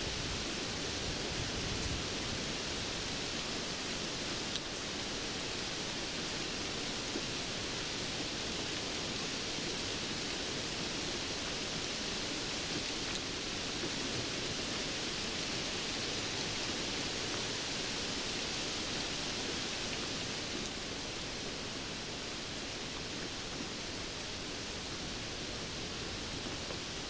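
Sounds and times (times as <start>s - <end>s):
steady rainfall: 0.0s - 27.0s.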